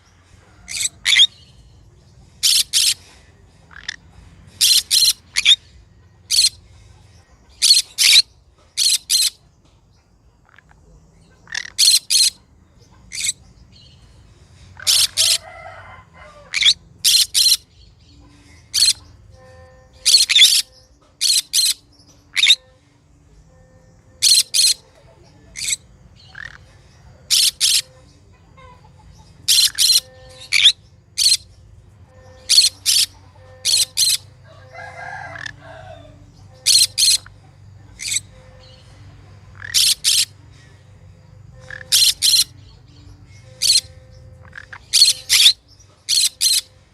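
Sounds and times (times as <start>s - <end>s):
parrot calling: 0.5s - 1.5s, 2.4s - 3.0s, 3.7s - 4.0s, 4.6s - 5.6s, 6.3s - 6.6s, 7.6s - 9.4s, 10.4s - 12.4s, 13.1s - 13.4s, 14.8s - 17.7s, 18.7s - 22.7s, 24.2s - 28.0s, 28.6s - 31.5s, 32.2s - 38.8s, 39.5s - 40.4s, 41.5s - 42.6s, 43.4s - 46.7s.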